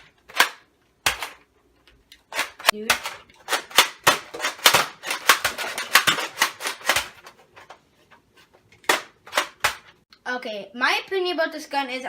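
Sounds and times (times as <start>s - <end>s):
toy blaster plastic clacks: 2.1s - 7.3s.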